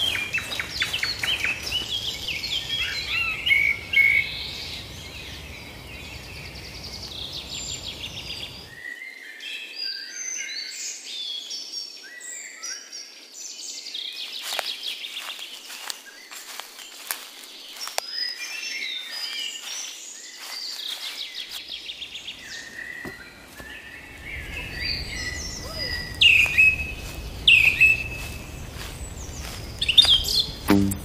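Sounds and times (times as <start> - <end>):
footsteps on leaf litter: 0.0 - 3.6, 14.2 - 30.8
birds singing and calling: 0.0 - 31.0.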